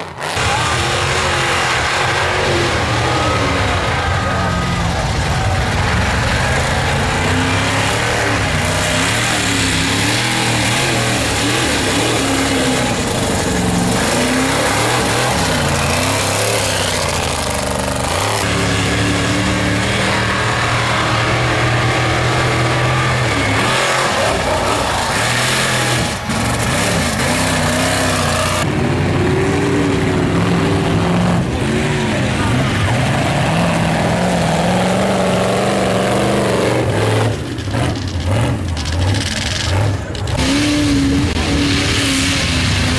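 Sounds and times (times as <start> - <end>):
truck engines revving hard: 0.0 - 42.9.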